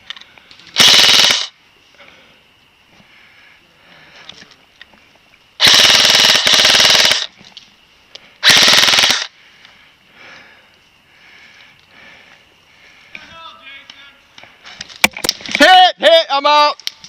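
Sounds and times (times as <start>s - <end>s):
airsoft rifle firing full-auto: 0.8s - 1.5s, 5.6s - 7.3s, 8.4s - 9.3s.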